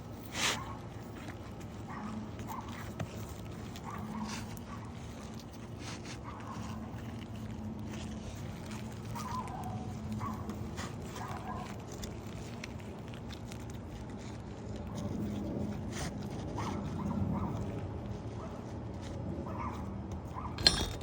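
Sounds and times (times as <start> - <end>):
tools on roof shingles: 20.6 - 21.0.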